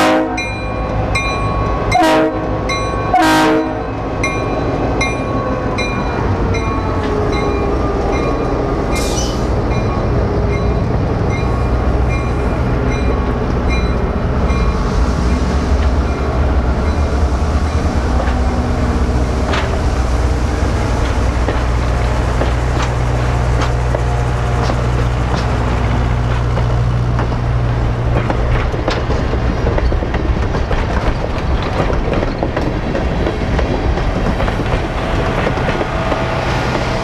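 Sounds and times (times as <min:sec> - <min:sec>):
crossing bell dinging: 0:00.0 - 0:15.4
diesel train rumbling past: 0:00.0 - 0:37.0.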